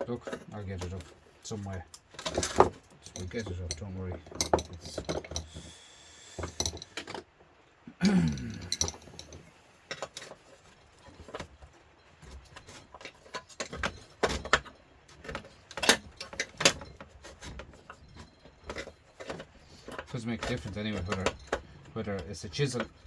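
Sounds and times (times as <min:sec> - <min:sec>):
metal tool prying and scraping: 0:01.9 - 0:05.8, 0:08.3 - 0:11.5, 0:12.1 - 0:23.0.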